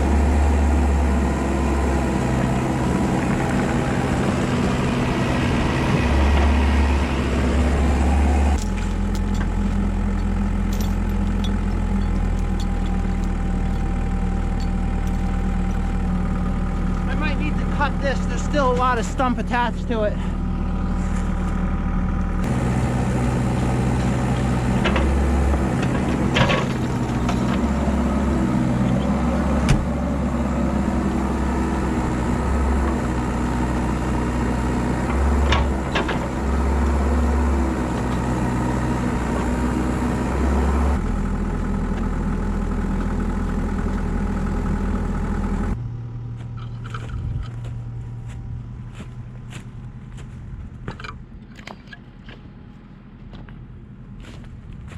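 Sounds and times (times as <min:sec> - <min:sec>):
excavator diesel engine: 0:00.0 - 0:54.9.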